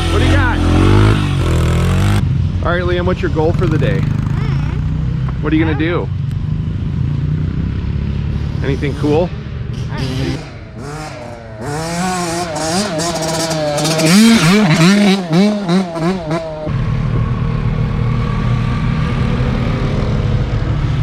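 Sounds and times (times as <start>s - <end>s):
dirt bike engine revving: 0.0s - 5.7s, 6.5s - 17.1s.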